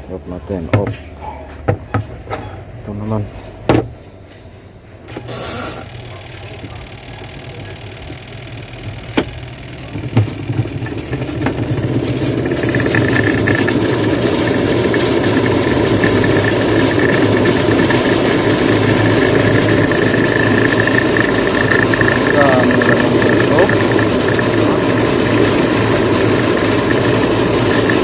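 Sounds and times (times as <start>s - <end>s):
washing machine running: 5.0s - 28.0s
sharp clicks: 12.4s - 28.0s.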